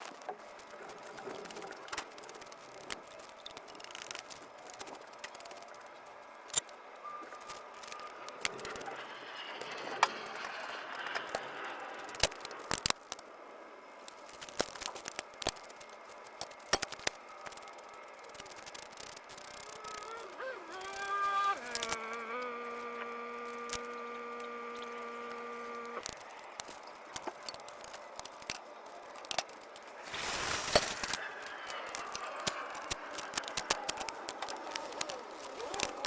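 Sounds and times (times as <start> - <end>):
sharp clicks and light knocks: 14.1 - 22.2, 23.0 - 30.0.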